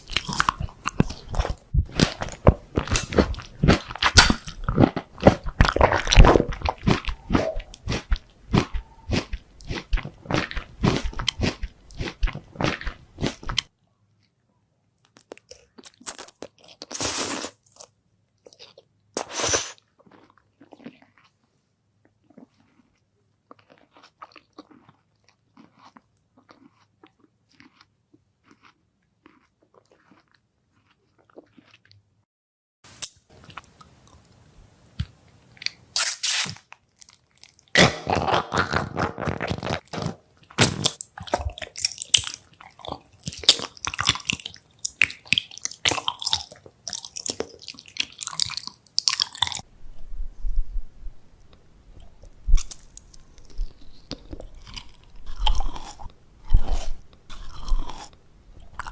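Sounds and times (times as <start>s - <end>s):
soft chewing: 0.0s - 32.1s, 33.0s - 35.8s, 38.3s - 50.8s, 51.4s - 58.9s
crisp crunching bites: 35.6s - 49.6s, 52.5s - 58.9s.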